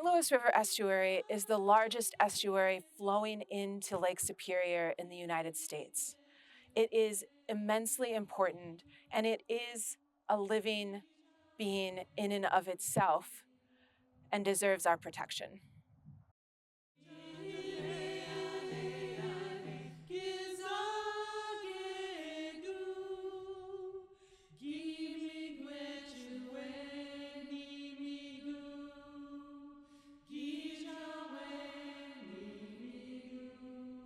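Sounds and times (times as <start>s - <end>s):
slow vocal chant: 17.0s - 34.0s.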